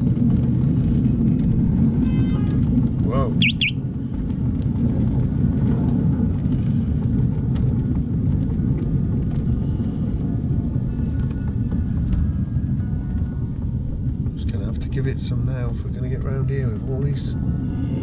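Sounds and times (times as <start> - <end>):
miniature train rumbling: 4.0 - 18.0.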